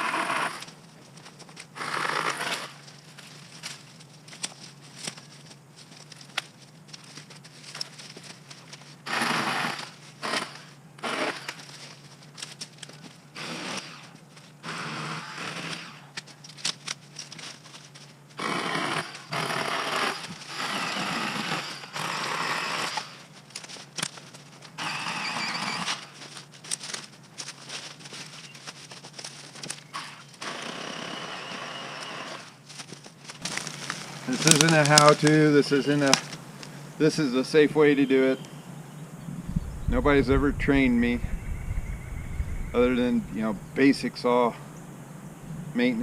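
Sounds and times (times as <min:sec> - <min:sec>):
electric chainsaw cutting: 0:00.0 - 0:00.7, 0:01.8 - 0:02.8, 0:09.0 - 0:11.6, 0:13.4 - 0:16.1, 0:18.4 - 0:23.2, 0:24.8 - 0:26.1, 0:30.0 - 0:32.6
brush and twigs crackling: 0:00.4 - 0:14.7, 0:16.0 - 0:30.7, 0:31.5 - 0:46.0
faint low hum: 0:32.9 - 0:46.0.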